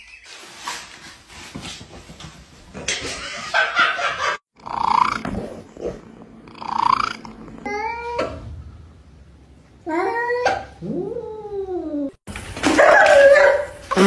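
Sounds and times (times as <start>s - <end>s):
rustling and scuffling: 0.2s - 3.4s.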